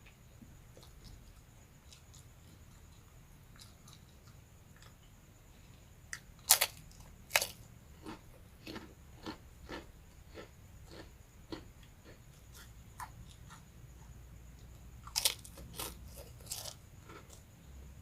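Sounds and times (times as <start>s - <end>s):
crunchy chewing: 0.6s - 17.8s
crunching bites of crackers: 6.1s - 13.5s, 15.0s - 17.4s.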